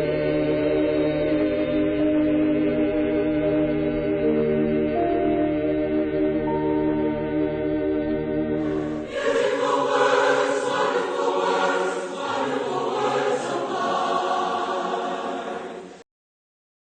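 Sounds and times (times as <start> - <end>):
choir singing: 0.0 - 7.7, 8.6 - 16.0
organ playing: 4.3 - 15.7.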